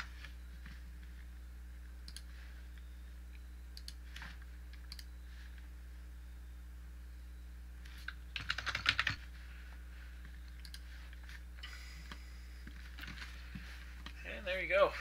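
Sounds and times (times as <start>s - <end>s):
steady low hum: 0.0s - 15.0s
computer keyboard typing: 8.0s - 9.2s.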